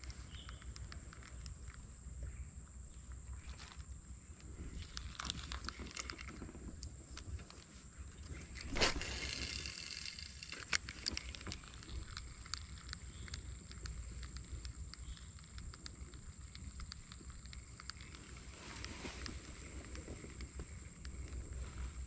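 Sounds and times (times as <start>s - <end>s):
reel clicking: 4.4s - 21.6s
line hissing off spool: 8.5s - 12.0s.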